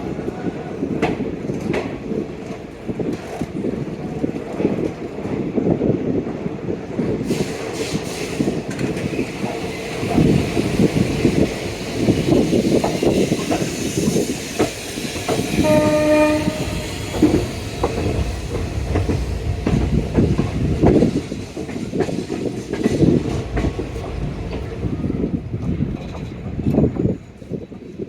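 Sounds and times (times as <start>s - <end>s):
train wheels clattering on rail joints: 0.1s - 28.0s
train horn: 15.5s - 17.5s.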